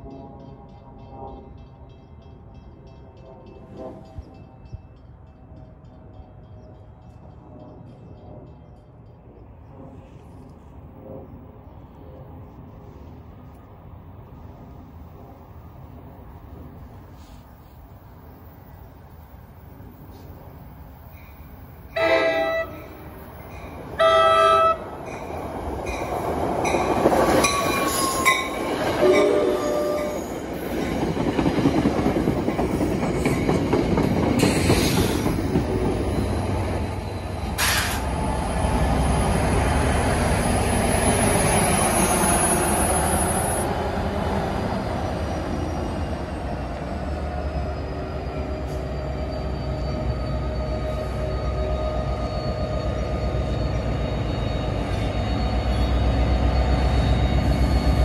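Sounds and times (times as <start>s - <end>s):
wheels rumbling on rail: 0.0s - 58.0s
train horn blasts: 3.1s - 4.8s, 21.9s - 23.1s, 24.0s - 25.0s, 27.8s - 30.3s.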